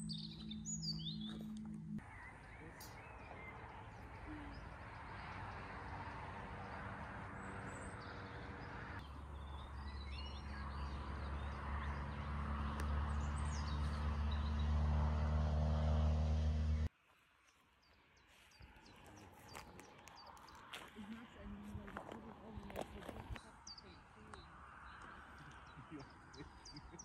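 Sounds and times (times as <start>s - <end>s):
footsteps on gravel: 0.0s - 2.0s, 18.1s - 23.5s
vehicle engine hum: 0.0s - 16.9s, 18.6s - 27.0s
birds chirping: 0.0s - 27.0s.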